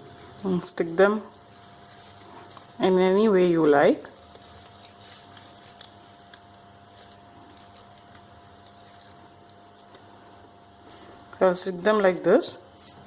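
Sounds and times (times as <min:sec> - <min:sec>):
paper ticks and rustles: 0:01.5 - 0:11.4.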